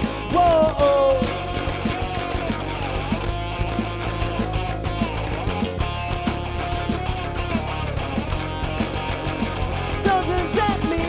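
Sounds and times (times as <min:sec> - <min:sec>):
bass guitar: 0:00.0 - 0:11.0
drum beat: 0:00.0 - 0:11.0
electric guitars playing melody: 0:00.0 - 0:11.0.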